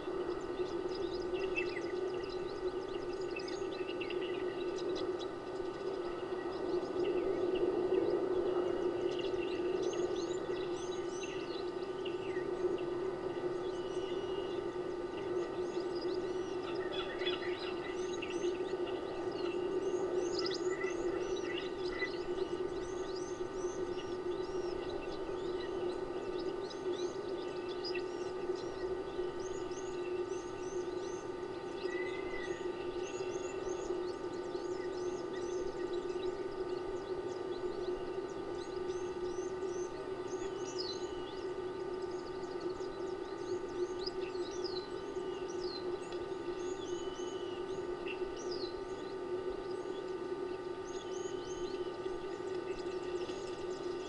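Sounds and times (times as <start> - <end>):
small birds chirping: 0.0 - 54.0
steady low hum: 0.0 - 54.0.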